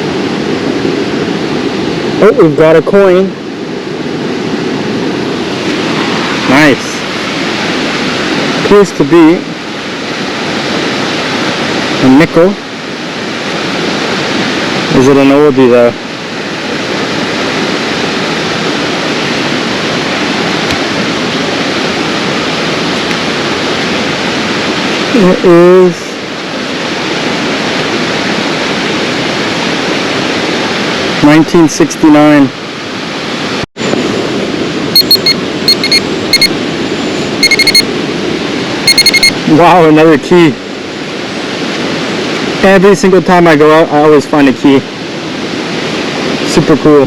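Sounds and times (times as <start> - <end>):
flowing water rushing: 0.0 - 47.0
metal detector beeping: 34.9 - 36.6, 37.4 - 37.9, 38.8 - 39.4.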